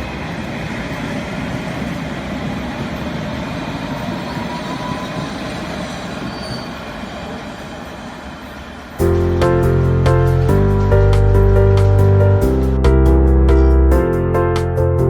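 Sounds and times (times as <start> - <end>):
train wheels rumbling on track: 0.0 - 13.1
faint wheel squeal: 3.9 - 8.6.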